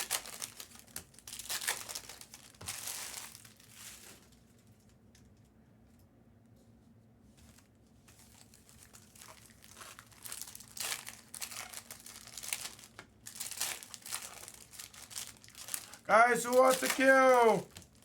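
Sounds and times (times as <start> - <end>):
foil packs crinkling: 0.0 - 4.6, 8.2 - 18.0.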